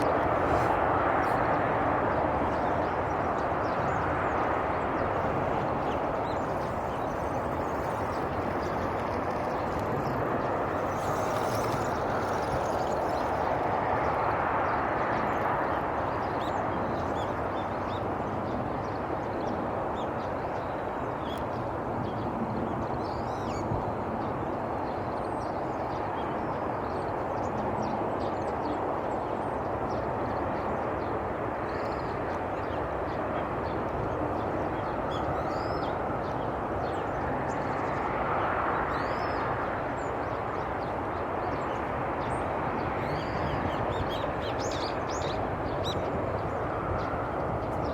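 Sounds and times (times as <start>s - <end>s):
distant traffic rumble: 0.0s - 15.8s
small birds chirping: 2.4s - 14.3s.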